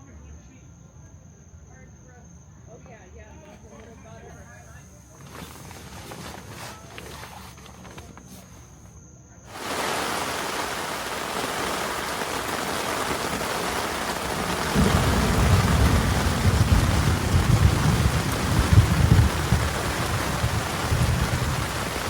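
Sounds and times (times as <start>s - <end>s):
deep uneven rumble: 9.5s - 22.0s
heavy rain pouring: 9.5s - 22.0s.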